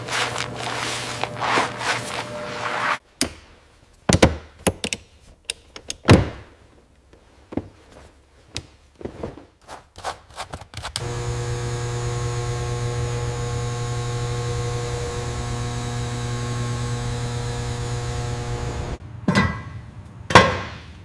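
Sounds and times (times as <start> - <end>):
steady hum with hiss: 11.0 - 19.0.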